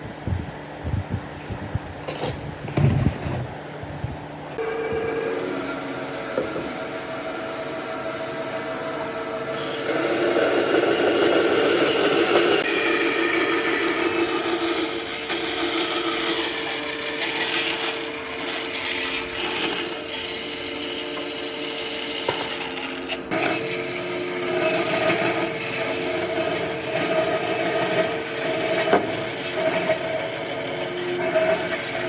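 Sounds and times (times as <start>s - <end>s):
power tool running on wood: 9.4s - 32.0s.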